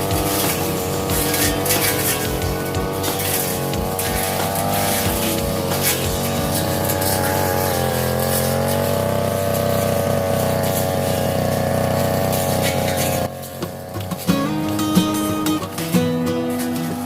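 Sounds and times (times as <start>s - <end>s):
brush cutter engine running: 0.0s - 17.0s.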